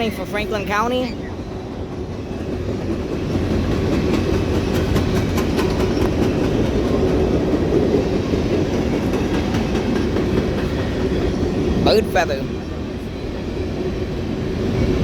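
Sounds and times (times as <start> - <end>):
freight train rumbling past: 0.0 - 15.0
wheels clicking over rail joints: 1.4 - 11.7.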